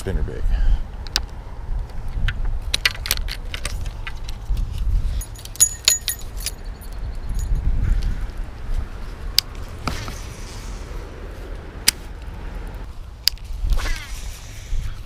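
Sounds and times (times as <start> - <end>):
light metallic jingling: 5.1 - 7.8.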